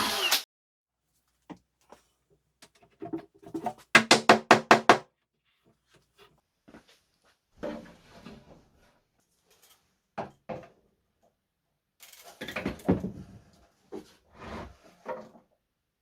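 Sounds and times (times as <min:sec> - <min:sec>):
wooden parts knocking and scraping: 0:02.7 - 0:05.0
wooden parts clattering: 0:03.0 - 0:05.0.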